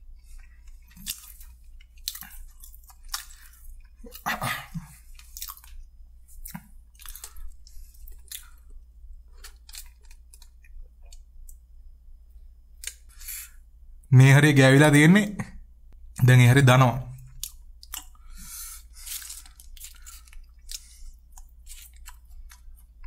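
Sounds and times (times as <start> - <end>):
chewing crispy fried food: 0.1 - 11.6, 17.3 - 23.0.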